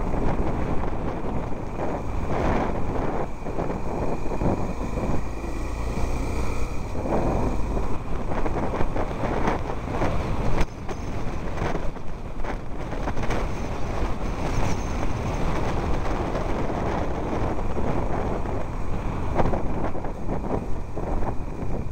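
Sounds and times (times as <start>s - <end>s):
car rumbling on rough road: 0.0s - 21.9s
wind on microphone: 0.0s - 21.9s.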